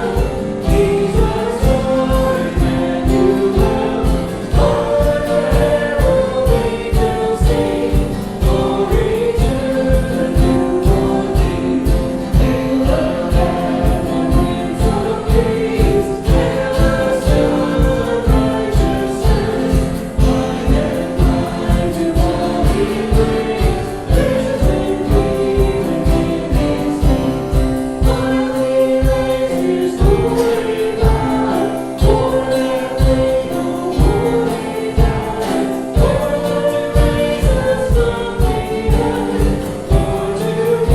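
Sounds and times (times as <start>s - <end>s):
choir singing worship music: 0.0s - 40.9s.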